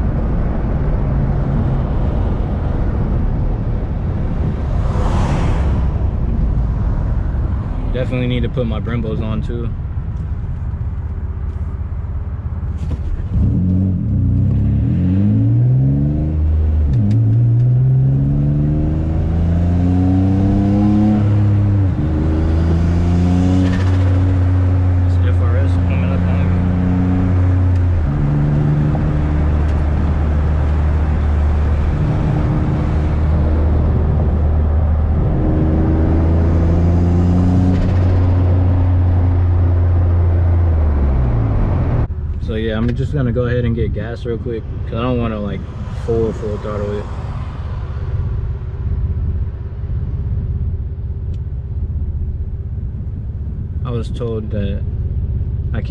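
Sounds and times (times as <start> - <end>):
car engine accelerating hard: 13.1 - 49.4.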